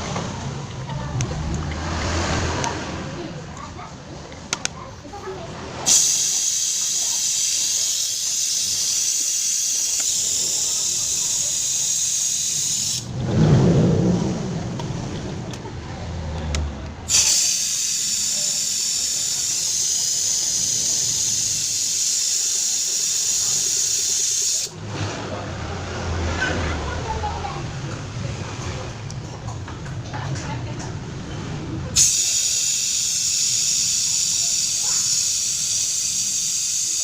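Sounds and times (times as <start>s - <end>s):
pressurised jet hissing: 5.8s - 13.1s, 17.1s - 24.8s, 32.0s - 37.0s
brief low rumble: 13.1s - 16.9s.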